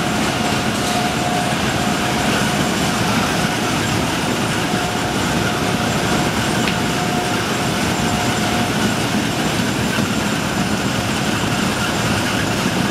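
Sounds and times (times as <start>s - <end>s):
faint steady whine: 0.0s - 12.9s
machinery engine running: 0.0s - 12.9s
machinery rattling and clatter: 0.0s - 12.9s.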